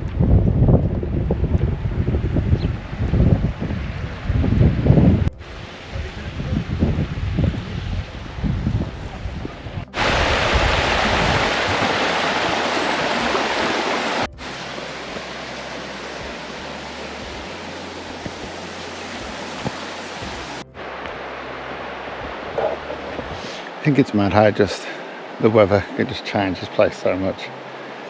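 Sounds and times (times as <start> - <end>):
wind buffeting microphone: 0.0 - 20.9, 22.1 - 23.6
water rushing: 2.3 - 28.0.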